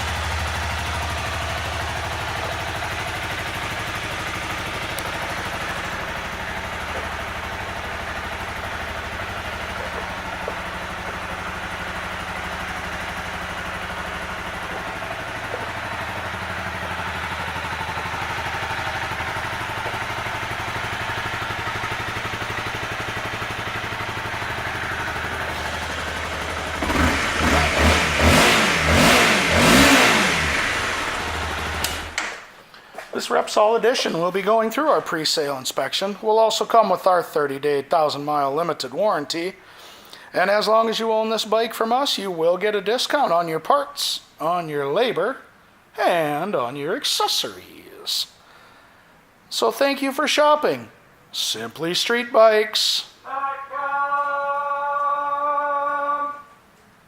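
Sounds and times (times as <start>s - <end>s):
motorcycle engine idling and revving: 0.0s - 32.5s.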